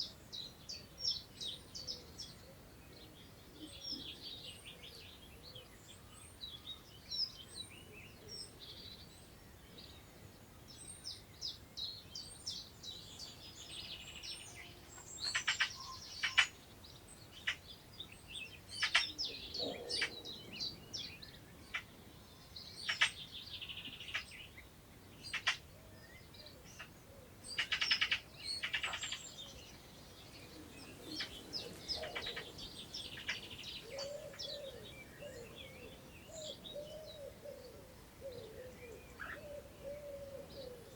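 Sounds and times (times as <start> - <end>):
songbirds singing: 0.0 - 40.9
pigeon cooing: 19.4 - 20.3, 30.6 - 32.6, 33.2 - 40.9.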